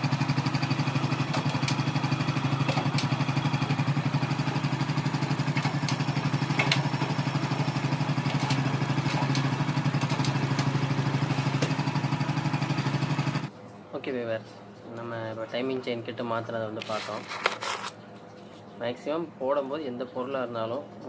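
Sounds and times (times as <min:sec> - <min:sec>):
motorcycle engine idling: 0:00.0 - 0:13.5.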